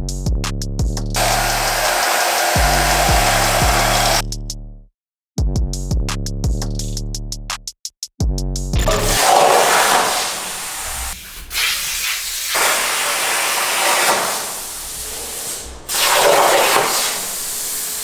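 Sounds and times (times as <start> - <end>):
loud hissing spray: 1.2 - 4.2, 9.1 - 18.0.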